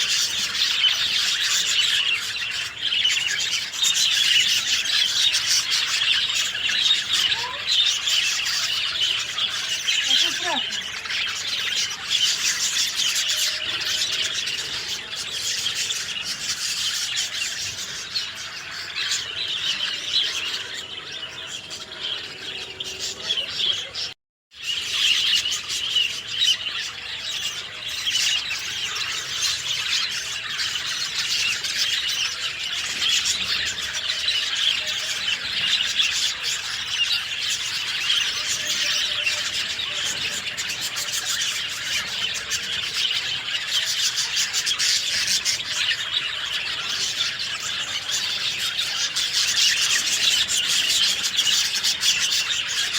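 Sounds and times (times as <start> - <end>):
songbirds chirping: 0.0 - 52.9.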